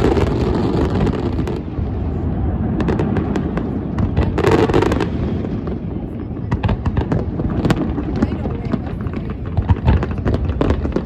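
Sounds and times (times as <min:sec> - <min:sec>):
firework booms: 0:00.0 - 0:11.0
firework crackles and pops: 0:00.0 - 0:11.0.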